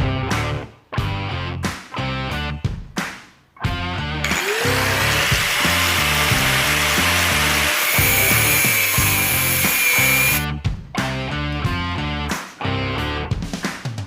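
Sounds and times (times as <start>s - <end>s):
rock music with guitar and drums: 0.0s - 14.0s
electric power tool running: 4.2s - 10.4s
high tool whine cutting: 4.2s - 10.4s.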